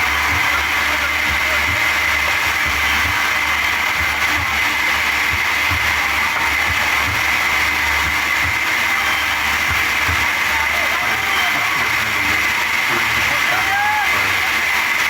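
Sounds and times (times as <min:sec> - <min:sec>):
high-pitched whine: 0:00.0 - 0:15.0
sawmill machinery running: 0:00.0 - 0:15.0.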